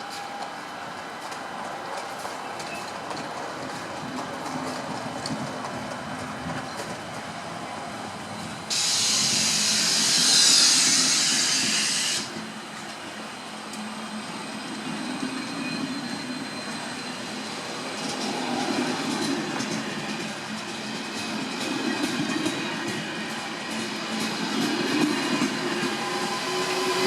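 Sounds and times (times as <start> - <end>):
train rumbling on rails: 0.0 - 27.0
loud hiss: 8.7 - 12.4.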